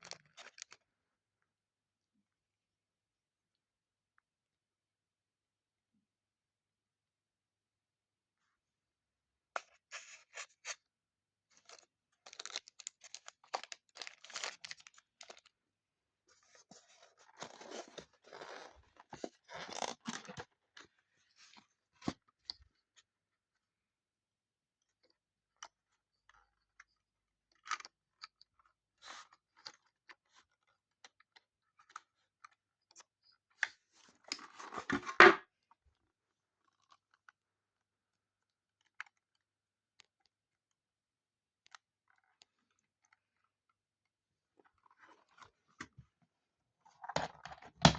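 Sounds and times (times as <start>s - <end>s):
plastic packaging crackling: 12.3s - 15.5s.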